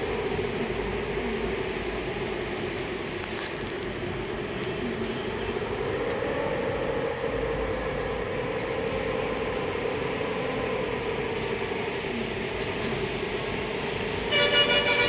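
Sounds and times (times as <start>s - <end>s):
droning hum: 0.0s - 15.0s
storm wind: 0.0s - 15.0s.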